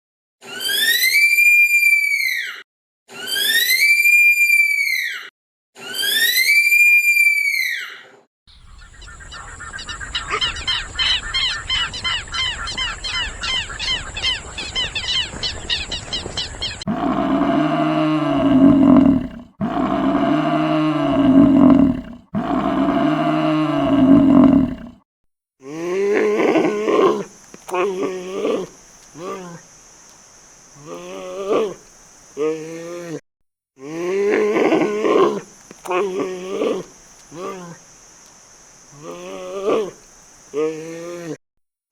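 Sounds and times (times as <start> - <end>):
whistling animal call: 0.4 - 16.8
rapid repeated chirping calls: 8.5 - 16.9
long rising and falling calls: 8.5 - 19.2
steady high hiss: 26.7 - 32.9, 34.6 - 41.0.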